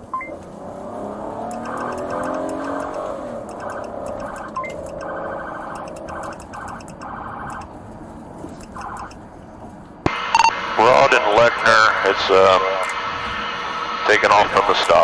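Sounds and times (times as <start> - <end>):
police siren through radio: 1.5 - 7.7, 14.0 - 15.0
short radio beep: 10.2 - 13.0.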